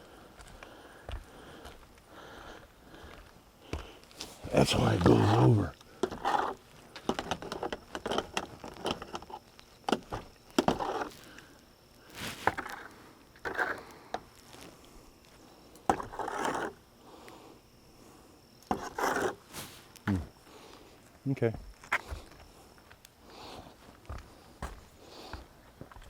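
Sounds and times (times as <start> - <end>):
short scrapes: 12.1 - 12.6, 18.8 - 20.0.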